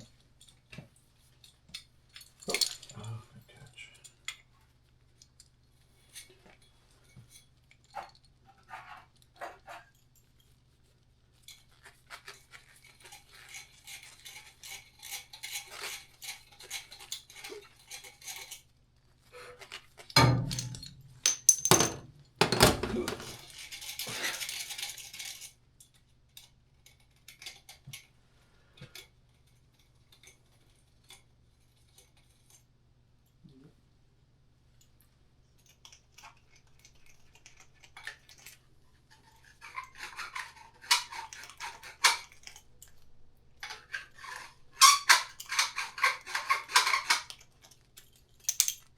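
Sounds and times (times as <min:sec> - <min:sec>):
metal tools clinking and rattling: 0:02.1 - 0:03.2, 0:20.2 - 0:25.5.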